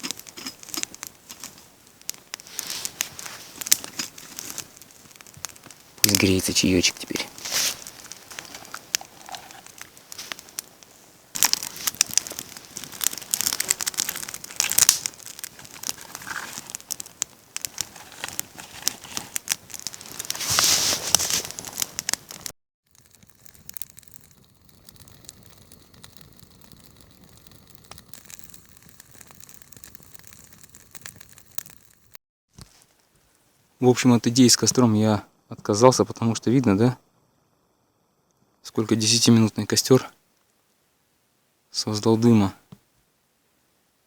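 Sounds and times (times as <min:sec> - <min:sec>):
campfire crackling and popping: 0:00.0 - 0:33.5.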